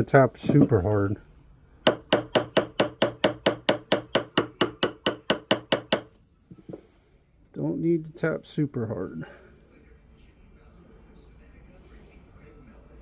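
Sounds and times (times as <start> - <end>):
hammer tapping metal ring: 1.9 - 6.2.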